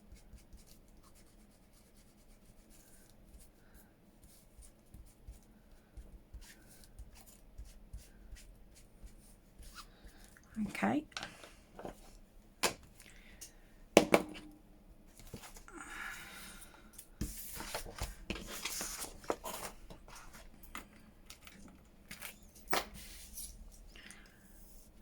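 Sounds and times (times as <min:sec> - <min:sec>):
small items knocking on table: 0:14.0 - 0:14.5
paper rustling and scraping: 0:17.2 - 0:20.5.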